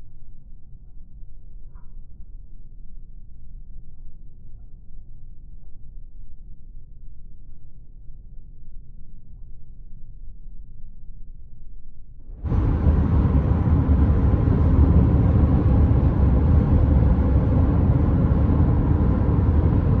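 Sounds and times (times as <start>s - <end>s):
car driving at highway speed: 12.4s - 20.0s.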